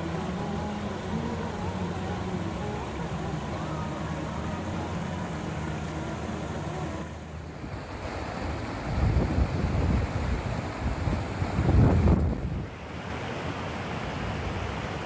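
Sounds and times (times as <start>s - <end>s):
steady low hum: 0.0s - 13.0s
wind gusting against microphone: 7.5s - 15.0s.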